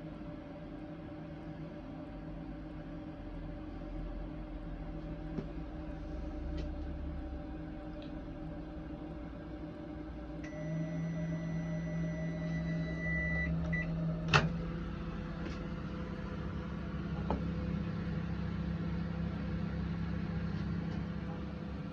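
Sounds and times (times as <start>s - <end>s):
microwave oven humming: 0.0s - 21.9s
high steady tone: 10.4s - 14.2s.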